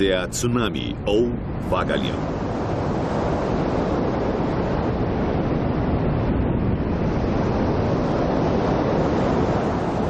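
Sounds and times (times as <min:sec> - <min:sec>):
ocean waves breaking: 0:00.0 - 0:10.0.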